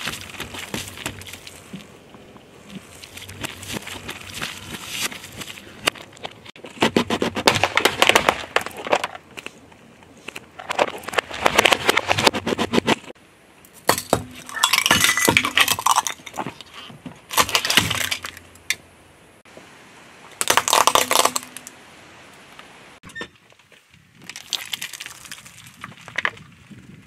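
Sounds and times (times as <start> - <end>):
tyre crushing plastic: 3.0 - 9.2, 14.0 - 18.4, 20.4 - 21.6.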